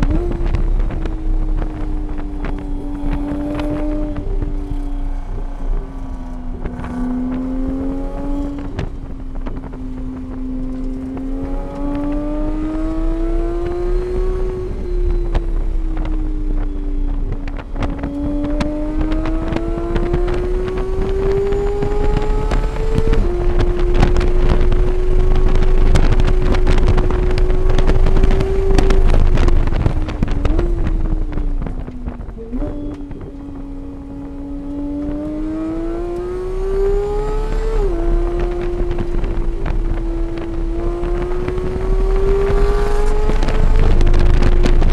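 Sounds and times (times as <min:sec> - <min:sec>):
race car engine under load: 0:00.0 - 0:44.9
wind noise: 0:00.0 - 0:44.9.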